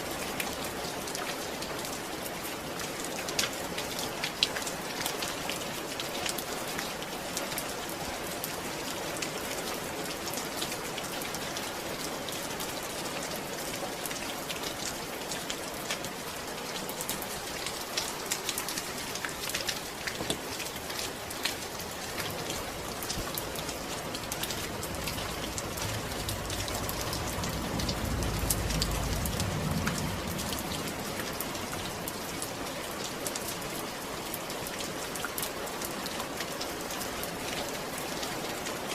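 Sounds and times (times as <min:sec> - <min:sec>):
rain falling: 0:00.0 - 0:38.9
soft low rumble: 0:22.3 - 0:32.2.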